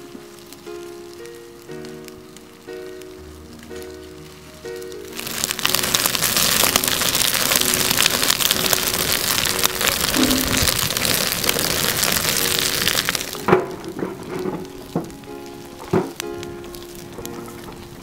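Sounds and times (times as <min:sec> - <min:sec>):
soft background music: 0:00.0 - 0:18.0
wood fire crackling: 0:00.0 - 0:18.0.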